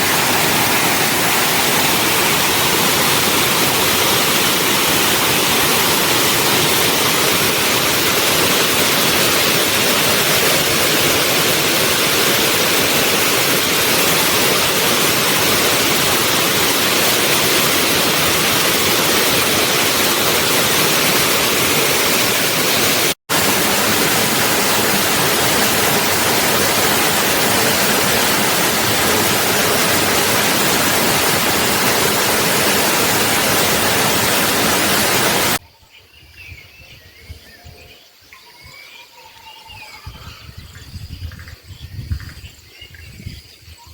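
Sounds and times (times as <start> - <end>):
waterfall rushing: 0.0 - 35.6.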